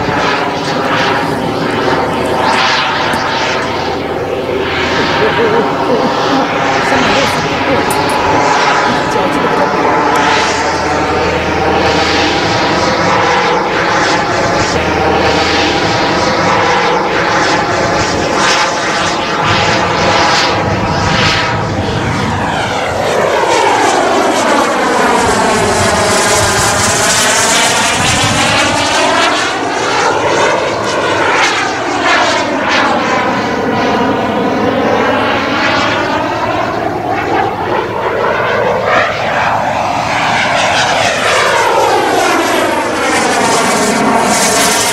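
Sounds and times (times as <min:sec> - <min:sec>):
jet engines roaring: 0:00.0 - 0:44.9.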